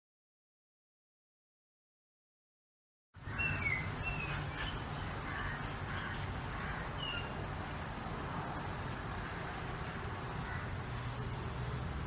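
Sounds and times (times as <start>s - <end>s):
bird chirps: 3.2s - 6.2s, 7.0s - 7.4s.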